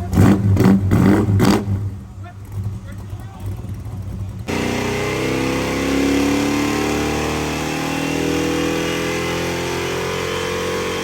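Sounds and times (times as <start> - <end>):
car engine revving high: 4.5 - 11.0.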